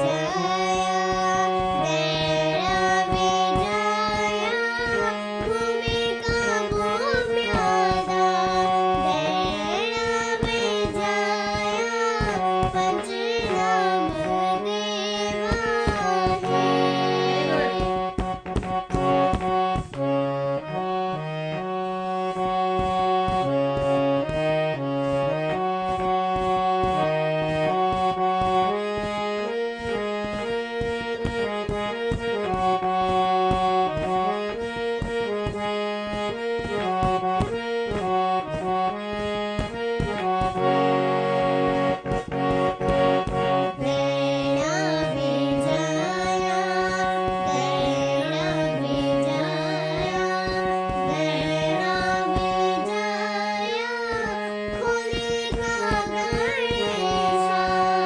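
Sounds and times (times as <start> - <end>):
girl singing: 0.0 - 18.2, 43.6 - 58.0
harmonium melody: 0.0 - 58.0
hand drum beat: 15.5 - 20.0.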